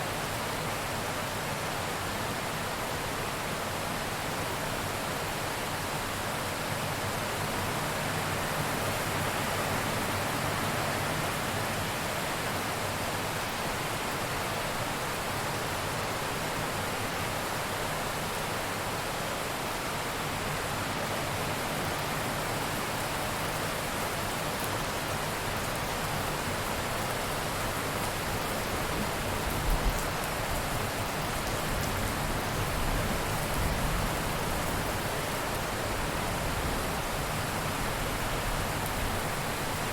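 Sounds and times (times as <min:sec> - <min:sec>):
heavy rain falling: 0:06.5 - 0:39.9.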